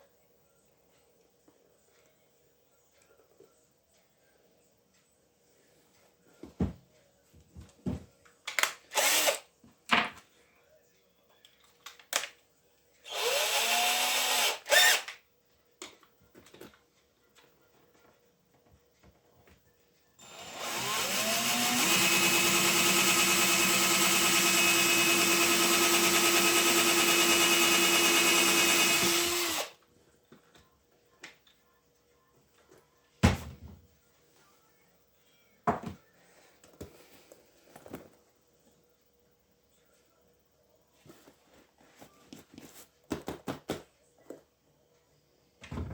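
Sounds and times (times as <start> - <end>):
power tool motor whine: 20.2 - 29.7.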